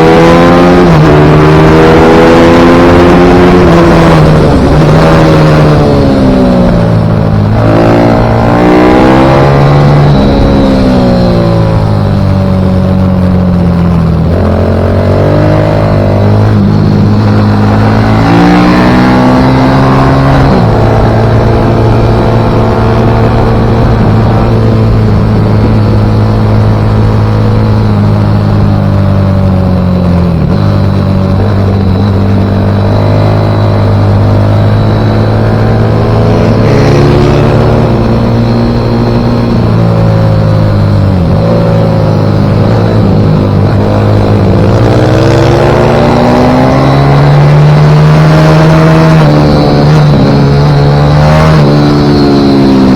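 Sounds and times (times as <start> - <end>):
pit bike engine revving: 0.0 - 52.9.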